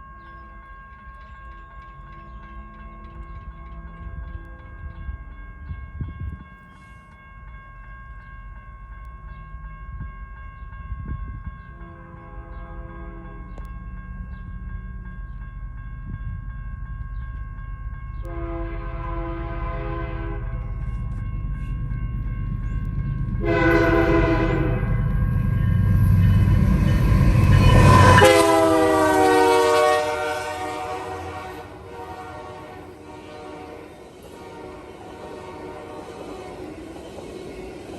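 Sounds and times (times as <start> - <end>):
diesel locomotive horn: 11.8 - 13.7, 18.2 - 20.8, 23.4 - 25.1, 27.4 - 36.7.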